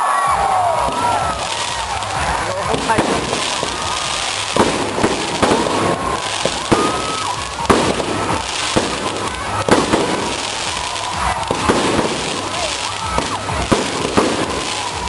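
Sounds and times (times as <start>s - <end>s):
crowd voices: 0.0s - 15.0s
fireworks crackling: 0.0s - 15.0s
firework shells bursting: 0.8s - 15.0s.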